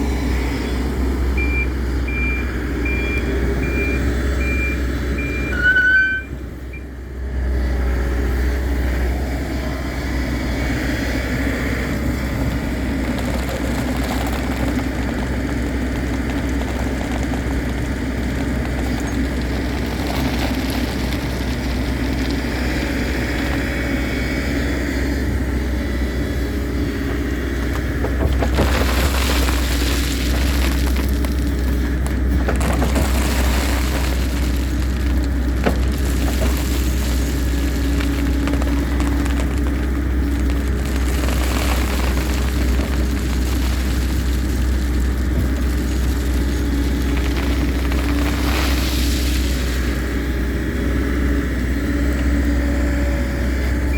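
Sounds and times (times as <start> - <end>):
diesel excavator engine running: 0.0 - 53.9
reversing alarm beeping: 1.4 - 6.9.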